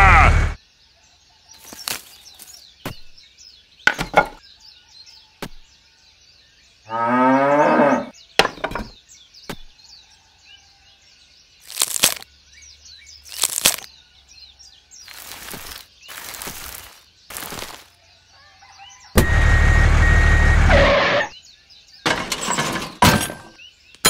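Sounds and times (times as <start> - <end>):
cow mooing: 0.0 - 0.5, 6.9 - 8.1
faint bird chirping: 0.6 - 20.2.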